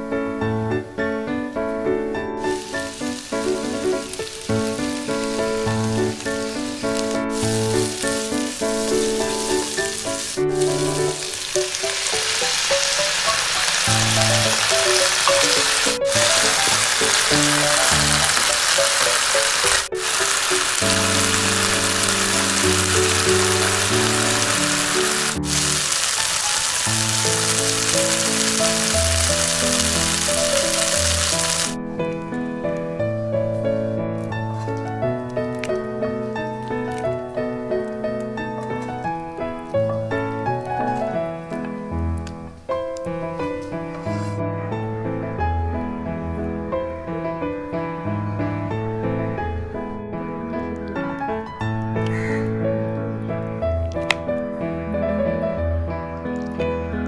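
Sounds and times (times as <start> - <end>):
background music: 0.0 - 57.0
vegetables sizzling in a pan: 2.4 - 31.8.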